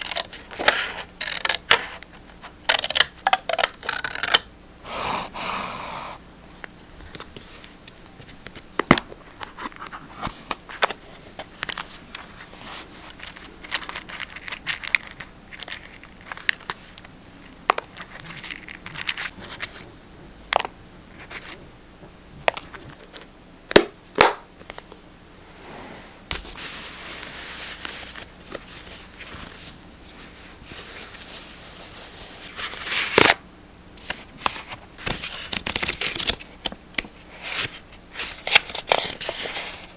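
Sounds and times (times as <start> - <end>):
paper rustling and crinkling: 26.3 - 33.2, 34.0 - 36.5, 37.3 - 39.9.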